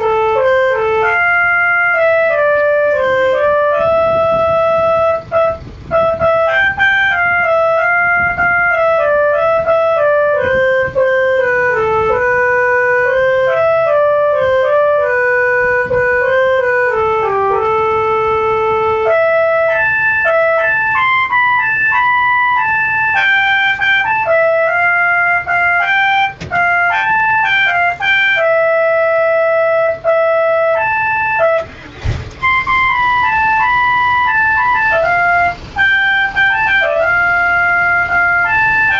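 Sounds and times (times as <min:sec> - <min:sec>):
bus horn playing a tune: 0:00.0 - 0:38.9.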